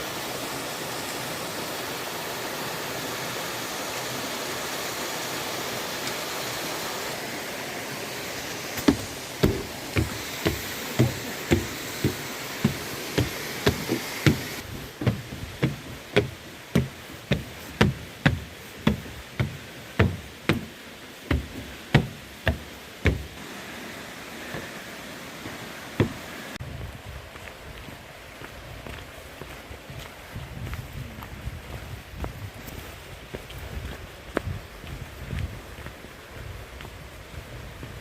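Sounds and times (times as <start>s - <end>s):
mountain stream rushing: 0.0s - 30.8s
footsteps on hollow walkway: 8.7s - 23.5s, 24.4s - 38.0s.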